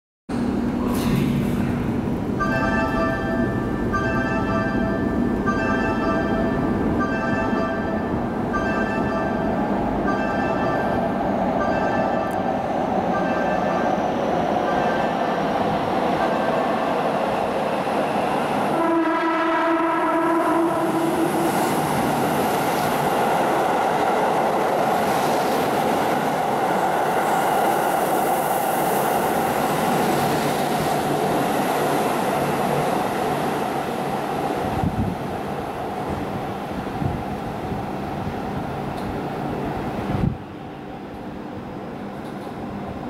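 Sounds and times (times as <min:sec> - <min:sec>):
train wheels and motors rolling: 0:00.3 - 0:18.8, 0:20.2 - 0:43.0
train horn: 0:18.7 - 0:21.2.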